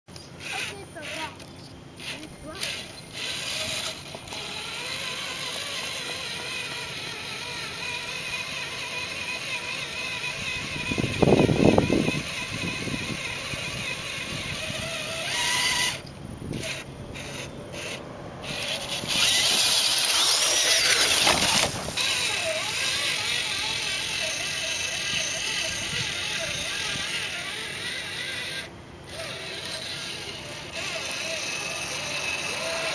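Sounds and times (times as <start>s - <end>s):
electric motor whining: 0.2s - 32.9s.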